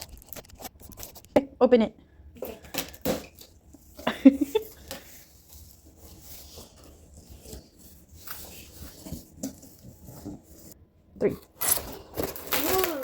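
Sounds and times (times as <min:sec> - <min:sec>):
packaging rustling: 0:11.6 - 0:13.0.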